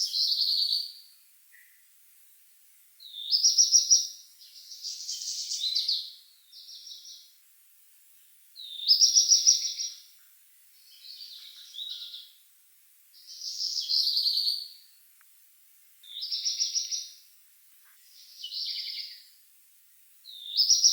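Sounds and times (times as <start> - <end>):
songbird singing: 0.0 - 1.8, 3.0 - 7.4, 8.6 - 12.4, 13.2 - 14.9, 16.0 - 17.2, 18.0 - 19.4, 20.2 - 20.9.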